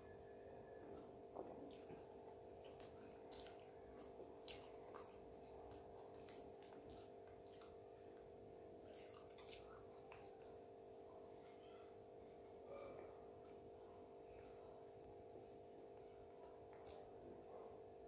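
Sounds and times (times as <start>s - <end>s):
person chewing: 1.4s - 11.2s, 15.4s - 17.3s.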